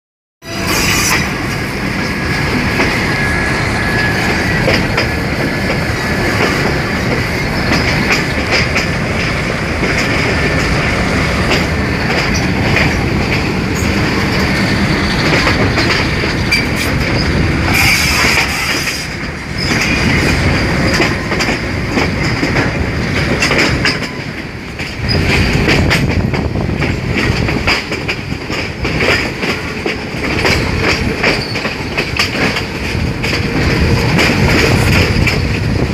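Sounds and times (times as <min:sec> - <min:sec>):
train rolling rumble: 0:00.4 - 0:35.9
wheels clacking over rail joints: 0:00.5 - 0:35.9
wheel squeal: 0:31.3 - 0:31.7.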